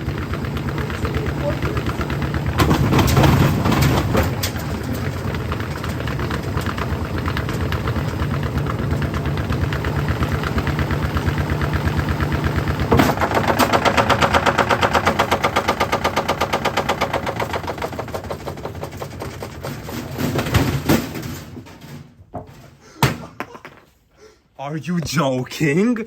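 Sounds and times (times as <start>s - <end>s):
brick banging in spinning drum: 1.7s - 8.3s, 12.9s - 23.9s.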